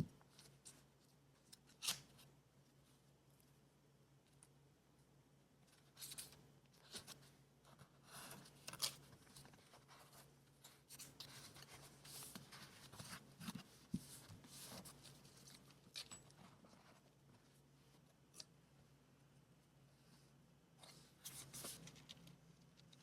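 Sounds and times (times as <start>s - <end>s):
paper rustling and crinkling: 5.7s - 17.2s, 20.8s - 22.4s.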